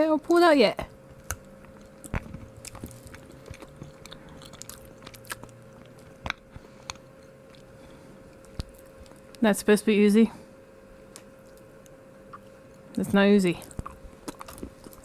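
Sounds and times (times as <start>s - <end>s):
person chewing chocolate: 1.1s - 9.4s, 11.1s - 13.0s, 13.6s - 15.0s
wet mouth clicks: 12.3s - 12.5s.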